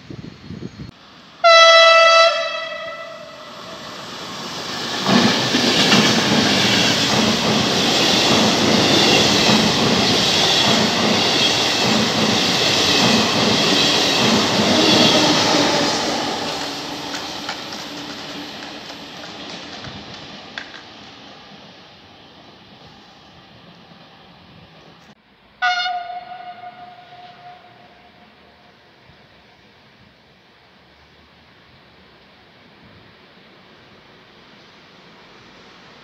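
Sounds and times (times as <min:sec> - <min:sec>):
train horn blast: 0:01.4 - 0:03.9, 0:14.6 - 0:17.7, 0:25.6 - 0:28.7
train wheels clattering over rail joints: 0:04.6 - 0:21.2.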